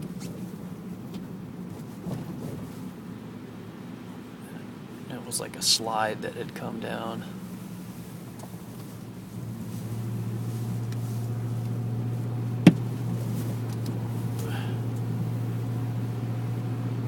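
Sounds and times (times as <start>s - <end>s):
vehicle engine and road noise: 0.0s - 17.0s
sharp knock: 12.6s - 12.8s.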